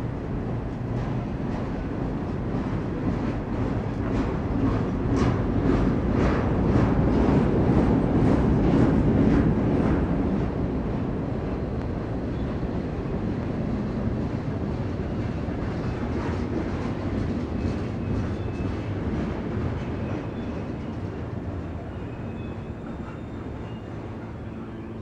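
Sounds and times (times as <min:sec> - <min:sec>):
freight train cars rumbling past: 0:00.0 - 0:25.0.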